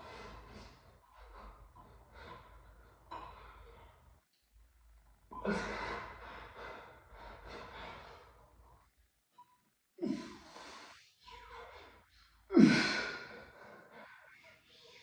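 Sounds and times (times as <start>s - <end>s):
man breathing hard: 5.5s - 8.5s.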